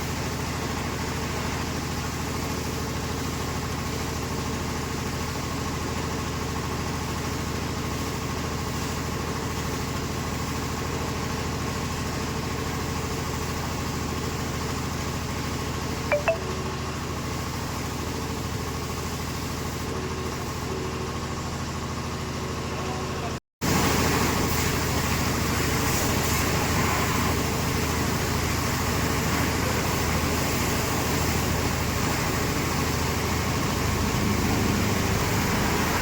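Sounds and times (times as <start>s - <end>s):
short high chirps: 16.1s - 16.5s.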